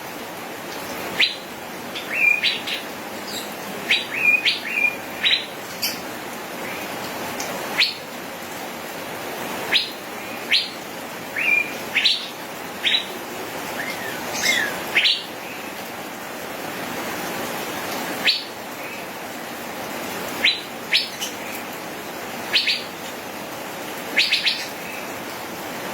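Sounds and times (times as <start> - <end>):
bird sharp chirps: 24.2 - 24.7.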